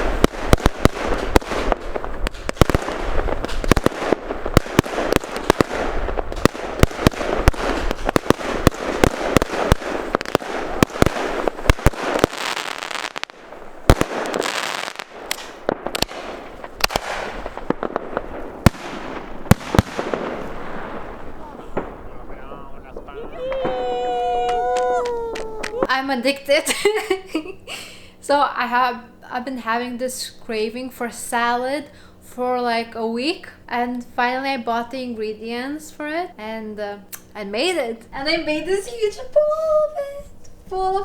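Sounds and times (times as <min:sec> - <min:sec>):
fireworks bangs: 0:00.0 - 0:26.0
fireworks crackling: 0:00.0 - 0:26.0.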